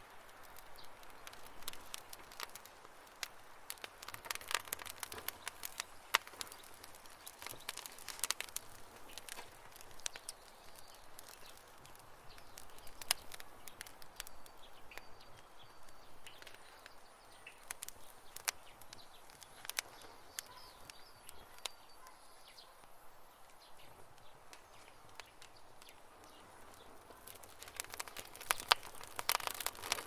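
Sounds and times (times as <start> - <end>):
campfire crackling: 0.0 - 30.0
faint high chirps: 20.0 - 22.9.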